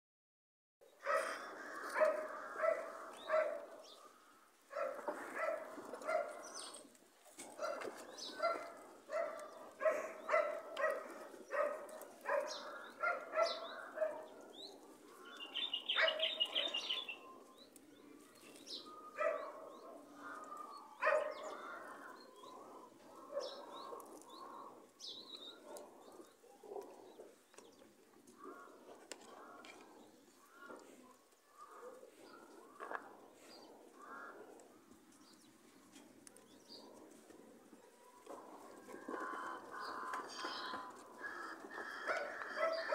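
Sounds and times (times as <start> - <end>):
birds calling repeated notes: 8.0 - 27.8, 38.9 - 42.9
high chirping bird trill: 15.3 - 17.4.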